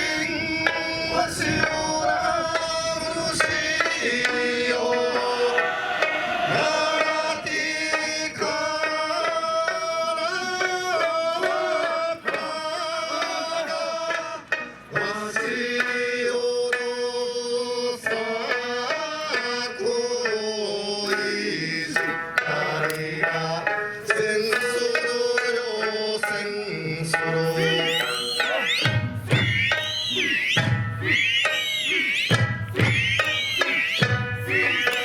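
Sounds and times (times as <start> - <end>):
person singing: 0.0 - 35.0
drum strikes: 27.2 - 35.0.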